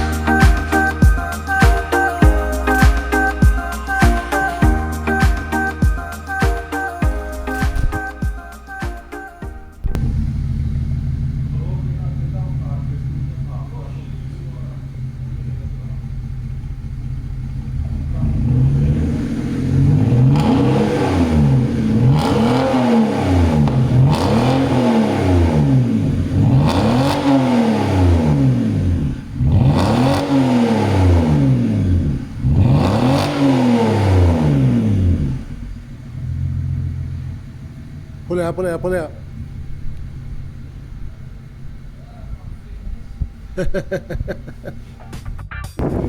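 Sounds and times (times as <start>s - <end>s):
car engine idling and revving: 0.0s - 46.0s.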